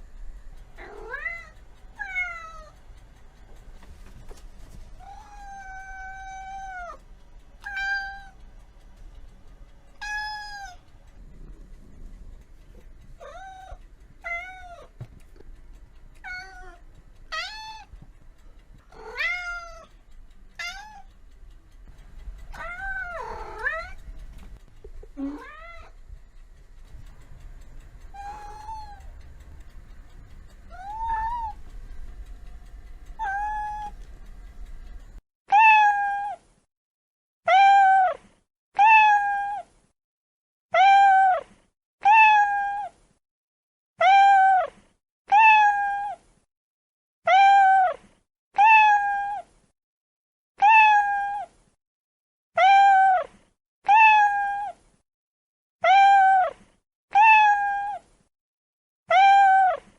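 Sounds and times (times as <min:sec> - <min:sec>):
low background hum: 0:00.0 - 0:35.2
cat meowing: 0:05.0 - 0:07.0, 0:10.0 - 0:10.8, 0:16.2 - 0:17.9, 0:18.9 - 0:19.9, 0:20.6 - 0:21.1, 0:22.6 - 0:24.0, 0:25.2 - 0:25.9, 0:28.2 - 0:29.1, 0:30.7 - 0:31.6, 0:33.2 - 0:34.0, 0:35.5 - 0:36.3, 0:37.5 - 0:38.1, 0:38.8 - 0:39.6, 0:40.8 - 0:41.4, 0:42.0 - 0:42.9, 0:44.0 - 0:44.7, 0:45.3 - 0:46.2, 0:47.3 - 0:48.0, 0:48.6 - 0:49.4, 0:50.6 - 0:51.5, 0:52.6 - 0:53.3, 0:53.9 - 0:54.7, 0:55.8 - 0:58.0, 0:59.1 - 0:59.8.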